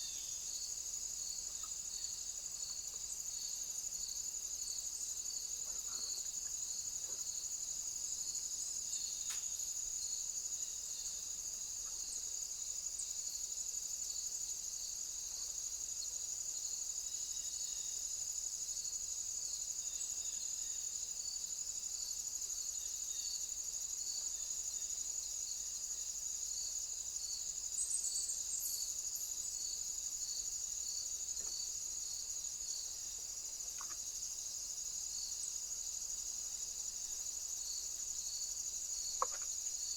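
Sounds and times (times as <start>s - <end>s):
insect high-pitched trill: 0.0s - 39.9s
insect pulsing chirp: 0.0s - 39.9s.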